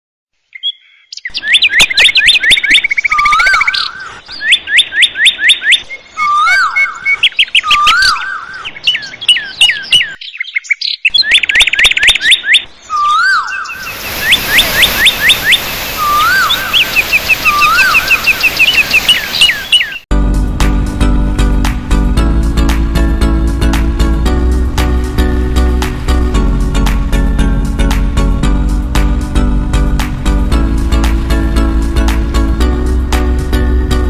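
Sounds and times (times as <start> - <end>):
bird chirping and whistling: 0.5 - 20.0
rushing water: 13.7 - 20.0, 29.8 - 33.5.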